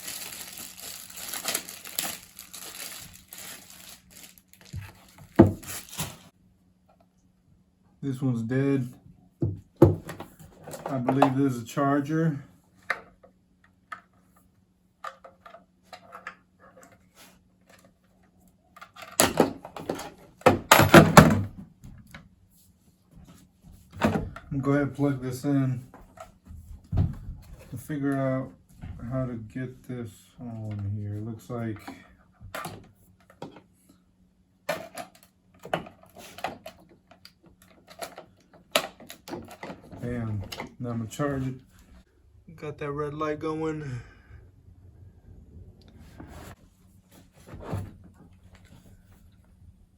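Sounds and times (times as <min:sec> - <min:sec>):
clattering and rustling packaging: 0:00.0 - 0:06.3, 0:34.7 - 0:40.8.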